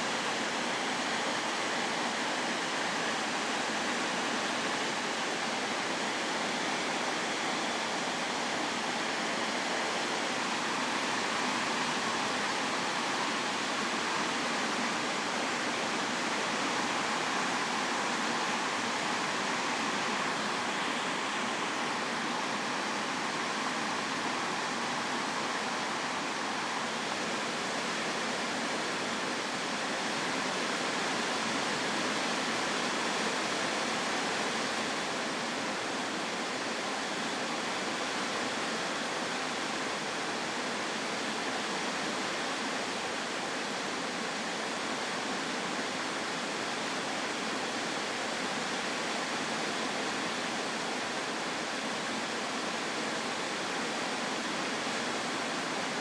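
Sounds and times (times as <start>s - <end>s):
heavy rain pouring: 0.0s - 39.1s.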